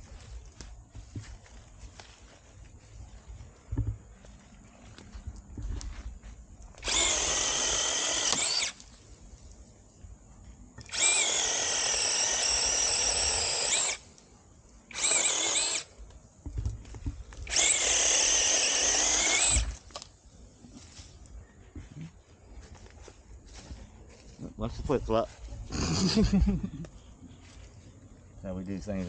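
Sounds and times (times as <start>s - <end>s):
mini chainsaw whining: 6.8s - 8.8s, 10.8s - 14.0s, 14.9s - 15.9s, 17.4s - 20.0s.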